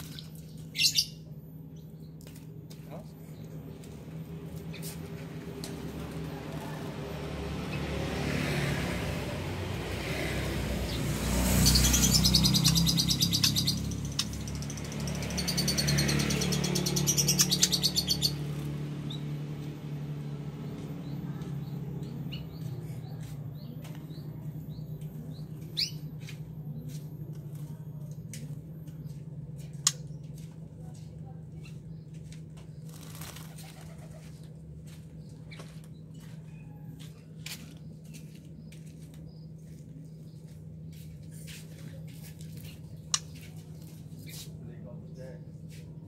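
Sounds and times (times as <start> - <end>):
bird chirps: 0.1 - 2.2, 10.9 - 19.3, 20.8 - 27.1
bird wings flapping and splashing: 32.9 - 34.0.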